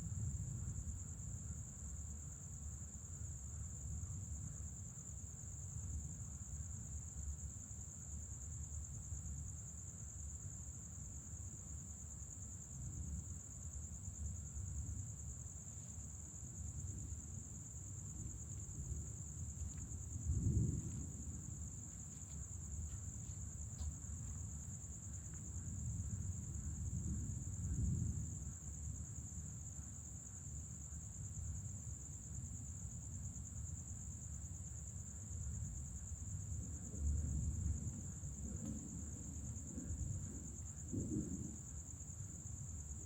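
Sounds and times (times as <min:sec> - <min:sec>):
crickets chirping: 0:00.0 - 0:43.0
distant thunder rumbling: 0:16.8 - 0:22.0, 0:36.8 - 0:41.9.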